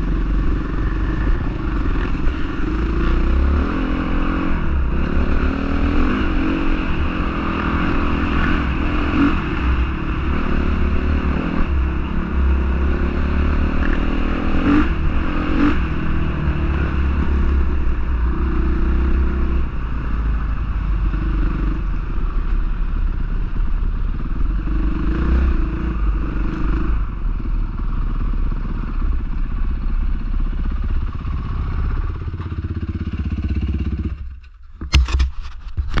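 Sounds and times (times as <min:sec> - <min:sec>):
motocross bike engine revving: 0:00.0 - 0:20.0.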